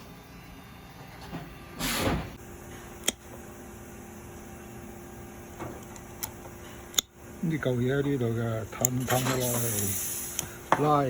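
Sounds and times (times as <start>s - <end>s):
rushing hiss: 9.4s - 10.5s.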